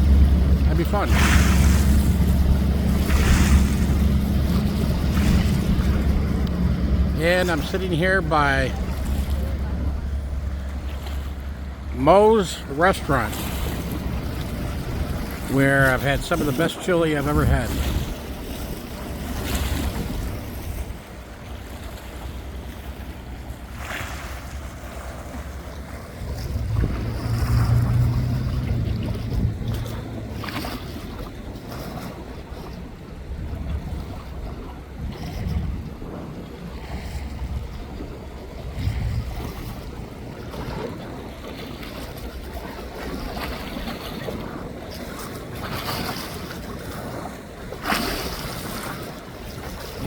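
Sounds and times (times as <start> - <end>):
wind rumbling on microphone: 0.0 - 12.0, 24.4 - 50.0
waterfront noise: 0.0 - 50.0.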